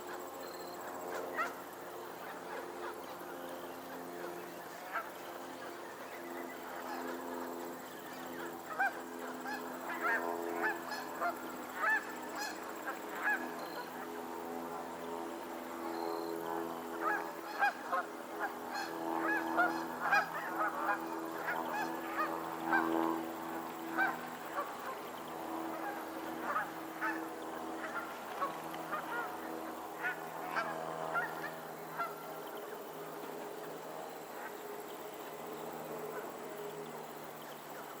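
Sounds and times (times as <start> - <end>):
steady low hum: 0.0 - 38.0
geese honking: 8.6 - 14.0, 17.0 - 23.3, 23.9 - 25.1, 25.7 - 32.2.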